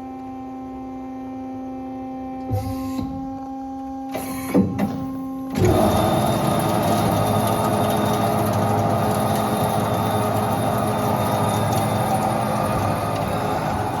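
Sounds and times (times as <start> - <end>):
band saw running: 5.6 - 14.0.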